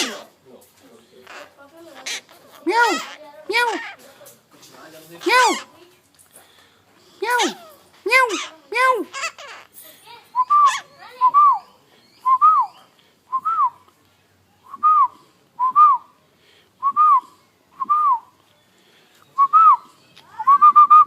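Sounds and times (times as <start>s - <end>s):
parrot whistling: 10.4s - 11.6s.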